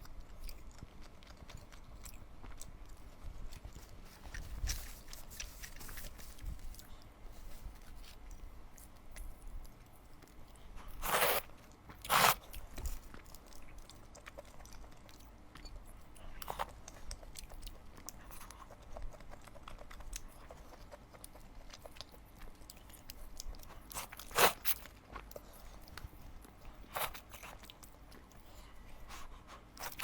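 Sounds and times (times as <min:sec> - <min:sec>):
chewing with small clicks: 0:00.0 - 0:05.2, 0:12.6 - 0:30.0.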